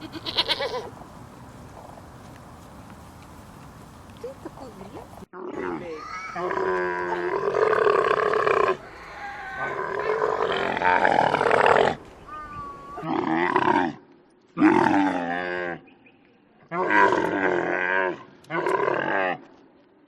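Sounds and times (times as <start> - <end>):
farm animal calling: 0.0 - 1.0.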